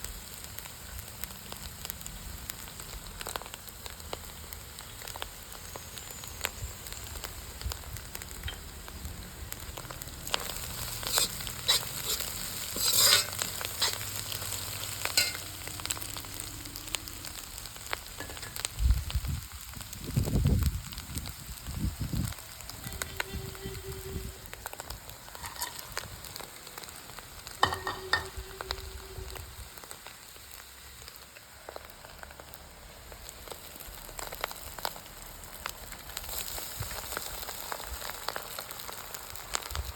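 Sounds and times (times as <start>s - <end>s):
food sizzling in a pan: 0.0s - 39.9s
spatula scraping a pan: 10.2s - 15.5s, 25.3s - 26.0s.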